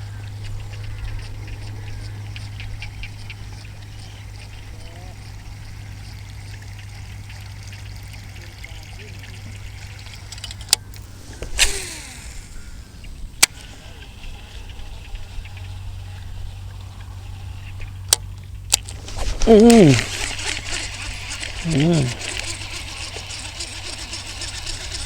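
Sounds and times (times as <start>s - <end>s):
water trickling and splashing: 2.3s - 11.3s
sharp clicks: 10.2s - 13.7s.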